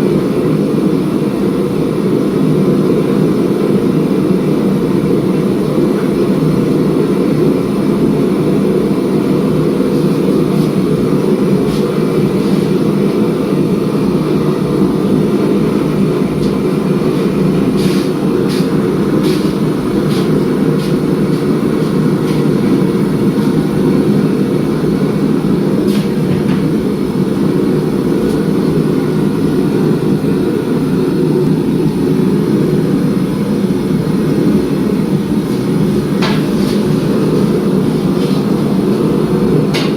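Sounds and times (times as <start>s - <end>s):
forging equipment running: 9.4s - 39.9s.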